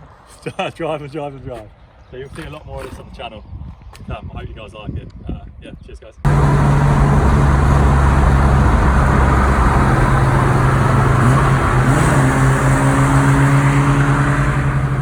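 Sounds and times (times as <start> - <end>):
road and wind noise: 0.0 - 15.0
car engine running: 6.3 - 15.0.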